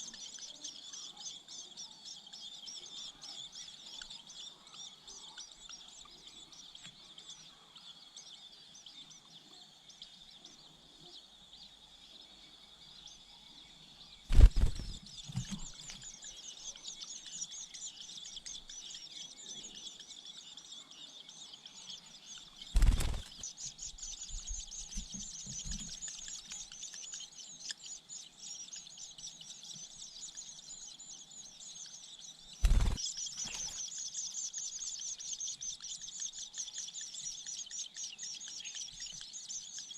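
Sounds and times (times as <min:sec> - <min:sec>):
nestlings chirping: 0:14.2 - 0:39.9.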